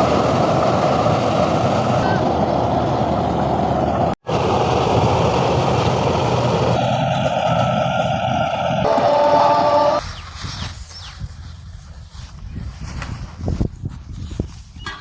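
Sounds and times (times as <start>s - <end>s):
tractor and harvester drone: 0.0s - 10.1s.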